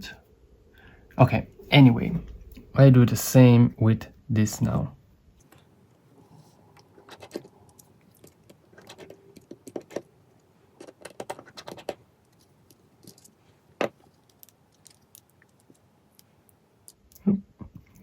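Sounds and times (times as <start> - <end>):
small tools clicking and scraping: 10.8 - 17.2.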